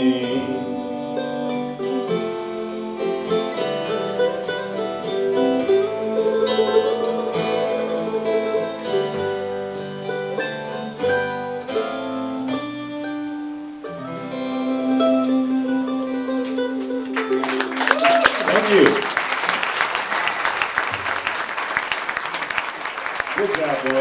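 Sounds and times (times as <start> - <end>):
acoustic guitar and plucked strings: 0.0 - 17.7.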